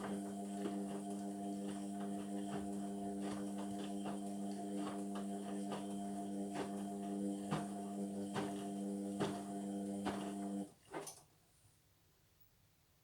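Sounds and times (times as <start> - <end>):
washing machine hum: 0.0 - 10.7.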